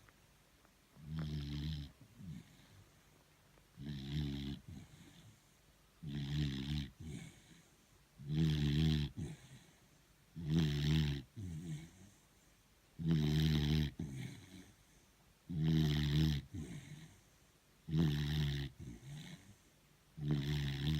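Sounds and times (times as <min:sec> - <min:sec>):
dog snoring: 0:01.0 - 0:02.9, 0:03.8 - 0:05.4, 0:06.0 - 0:09.8, 0:10.4 - 0:12.2, 0:13.0 - 0:20.9.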